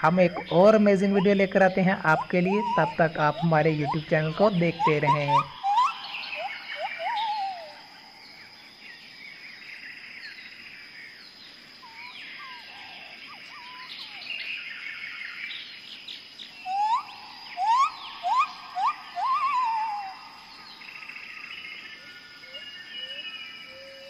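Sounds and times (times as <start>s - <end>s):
birds chirping and whistling: 0.0s - 8.6s, 11.8s - 24.0s
quick rising bird whistles: 5.6s - 7.8s, 16.7s - 20.1s.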